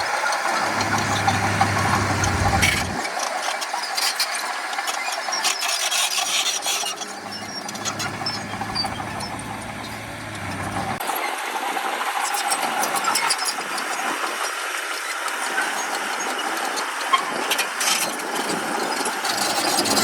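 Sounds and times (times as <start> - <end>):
diesel engine running: 0.0 - 3.1, 7.0 - 11.0
deep engine hum: 0.4 - 3.0, 7.1 - 11.0
gritty scraping and clattering: 0.4 - 3.0, 5.7 - 11.0.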